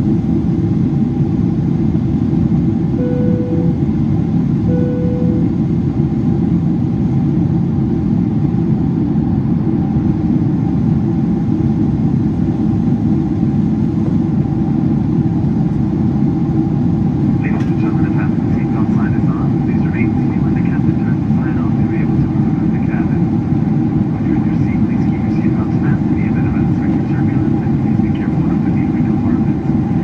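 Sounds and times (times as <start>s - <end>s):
airplane cabin roar: 0.0s - 30.0s
short beeps: 3.0s - 3.8s, 4.7s - 5.6s.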